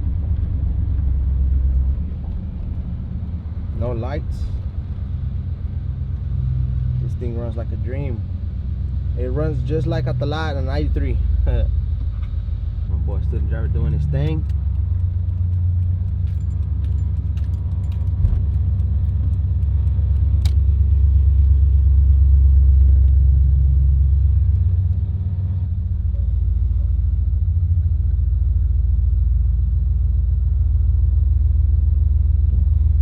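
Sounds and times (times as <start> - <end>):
pickup truck engine rumbling: 0.0 - 33.0.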